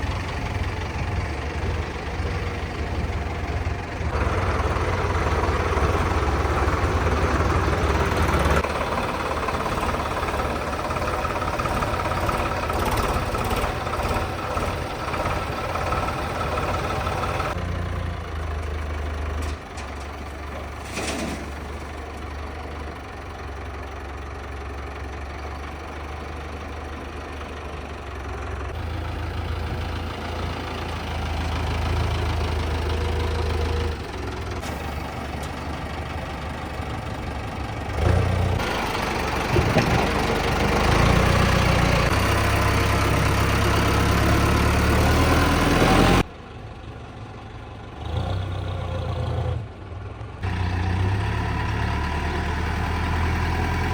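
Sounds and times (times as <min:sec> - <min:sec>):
tractor engine running: 0:00.0 - 0:53.9.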